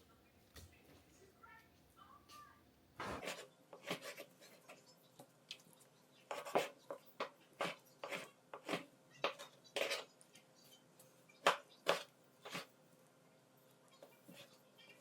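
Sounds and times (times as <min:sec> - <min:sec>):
scrape on chopping board: 0:03.0 - 0:04.6, 0:06.3 - 0:06.8, 0:07.6 - 0:10.1, 0:11.9 - 0:12.7.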